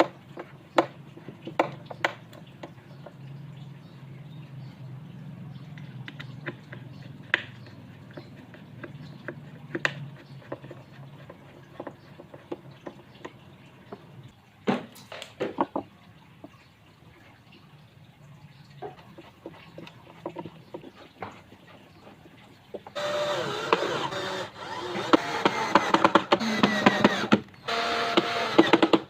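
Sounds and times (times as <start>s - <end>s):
wooden parts knocking: 14.7s - 15.9s, 22.8s - 27.5s.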